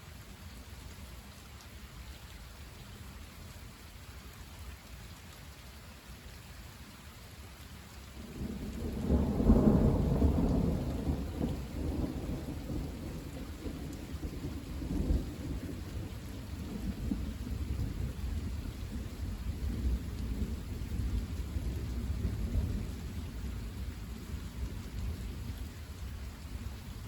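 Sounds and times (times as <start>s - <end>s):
steady rain: 0.0s - 27.0s
thunder rumbling: 8.3s - 25.6s.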